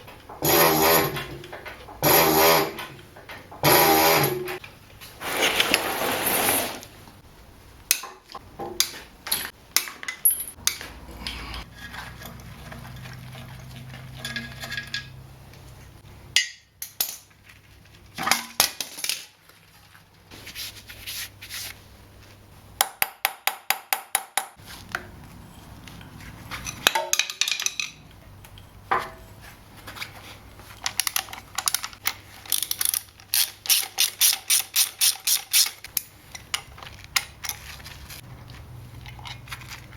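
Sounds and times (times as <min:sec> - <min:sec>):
spanners and bolts clinking: 0:09.3 - 0:15.2, 0:26.5 - 0:29.4, 0:30.8 - 0:37.8
ratchet spanner clicking: 0:32.5 - 0:36.1.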